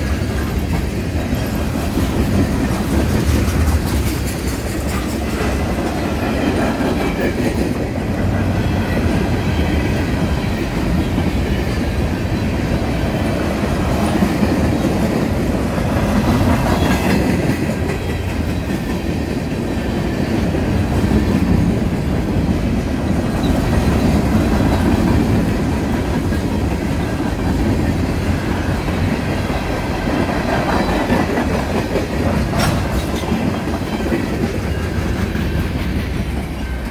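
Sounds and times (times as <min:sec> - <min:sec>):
freight train rolling past: 0:00.0 - 0:36.9
steel wheels running over rails: 0:00.0 - 0:36.9.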